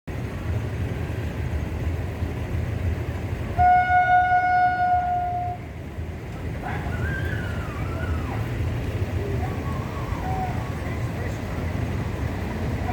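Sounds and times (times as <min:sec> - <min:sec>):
passing train rumble: 0:00.1 - 0:12.9
train horn: 0:03.6 - 0:05.6.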